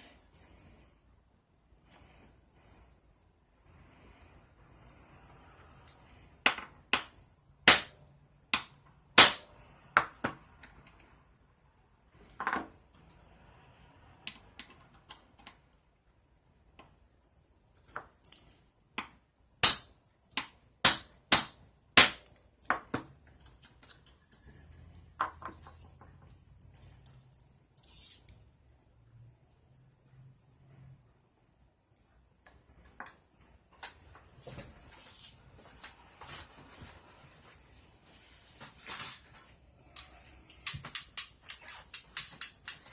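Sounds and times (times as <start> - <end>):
small hard parts clicking: 39.9 - 42.9.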